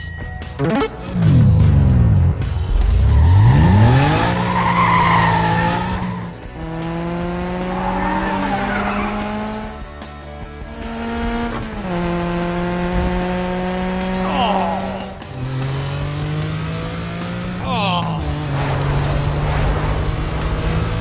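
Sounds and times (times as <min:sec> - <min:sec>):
cartoon vehicle engine revving: 0:00.6 - 0:09.8, 0:10.7 - 0:21.0.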